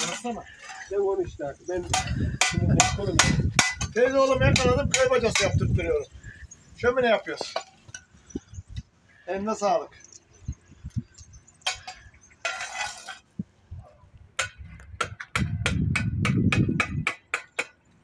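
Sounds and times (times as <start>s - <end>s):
hand tool tapping on masonry: 1.8s - 5.6s, 14.4s - 17.8s.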